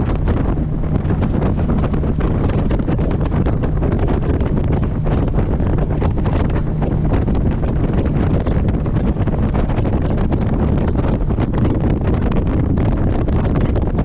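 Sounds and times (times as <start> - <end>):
motorboat engine drone: 0.0 - 14.0
wind buffeting microphone: 0.0 - 14.0.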